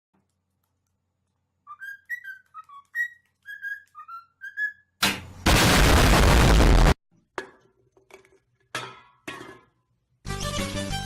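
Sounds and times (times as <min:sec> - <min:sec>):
parrot whistling a tune: 0:01.6 - 0:05.0
loud burst of noise: 0:05.4 - 0:07.0.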